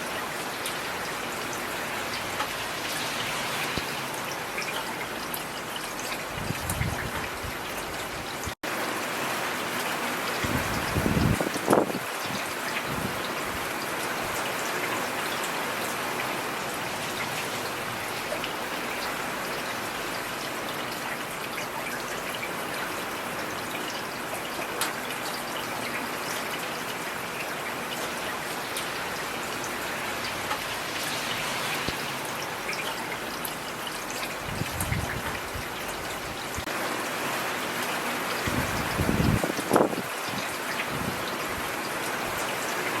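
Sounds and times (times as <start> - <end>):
rain hissing: 0.0 - 7.0, 28.3 - 43.0
raindrops ticking on hard surfaces: 0.0 - 43.0.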